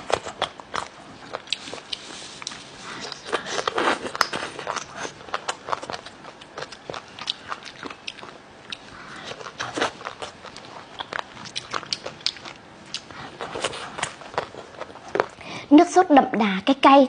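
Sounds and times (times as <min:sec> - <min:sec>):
person crunching and chewing: 0:00.0 - 0:15.4.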